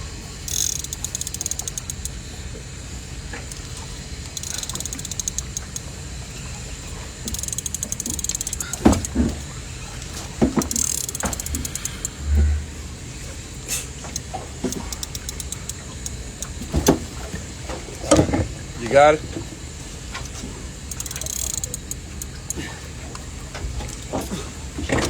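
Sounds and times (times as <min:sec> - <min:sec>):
fishing reel ratcheting clicks: 0:00.4 - 0:02.6, 0:03.3 - 0:12.3, 0:13.7 - 0:17.2, 0:20.3 - 0:22.8.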